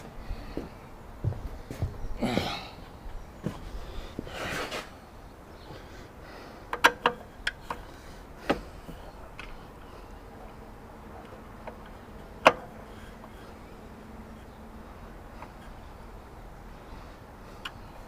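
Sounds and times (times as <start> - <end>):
tools rustling and scraping: 4.2 - 5.0
hard objects clicking and knocking: 6.6 - 9.9.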